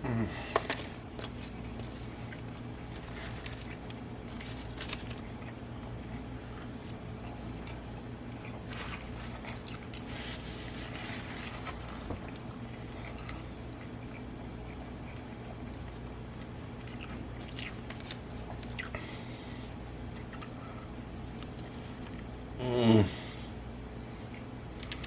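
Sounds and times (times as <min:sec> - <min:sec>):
steady low hum: 0:00.0 - 0:25.0
person chewing wetly: 0:00.5 - 0:10.1, 0:11.6 - 0:19.1.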